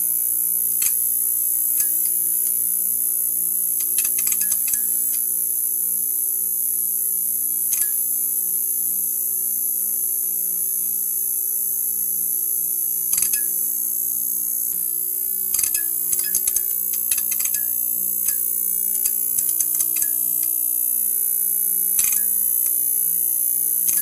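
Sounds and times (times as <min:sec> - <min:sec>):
neon sign buzzing: 0:00.0 - 0:06.4, 0:13.2 - 0:24.0.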